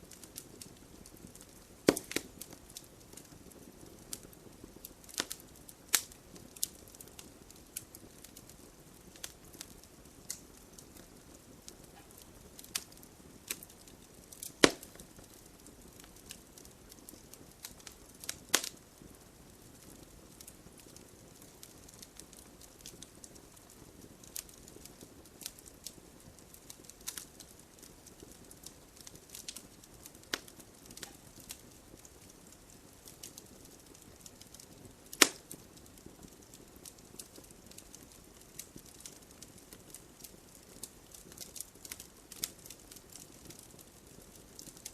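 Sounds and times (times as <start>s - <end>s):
loud fire pops: 0.0s - 44.9s
wood logs crackling in fireplace: 0.0s - 44.9s.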